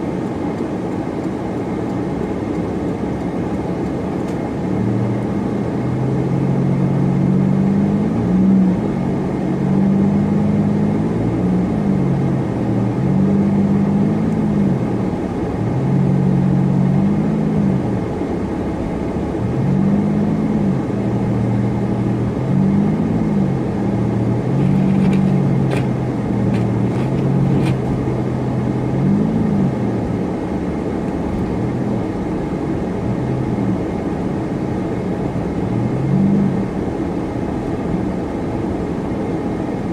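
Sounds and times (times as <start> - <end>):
car engine hum: 0.0 - 39.9
road noise: 0.0 - 39.9.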